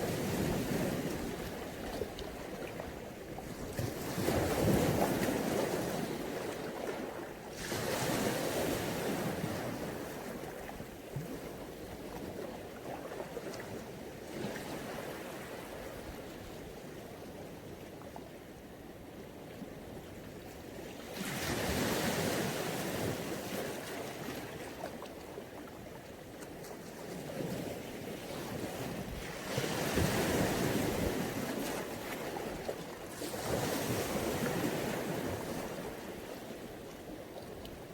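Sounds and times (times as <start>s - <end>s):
waves washing on beach: 0.0s - 16.6s, 20.6s - 25.5s, 26.6s - 37.9s.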